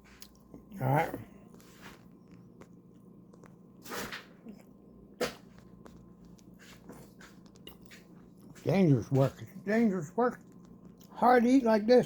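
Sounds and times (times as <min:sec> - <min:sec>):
person chewing: 0:00.0 - 0:01.2, 0:05.7 - 0:08.6, 0:10.4 - 0:11.2.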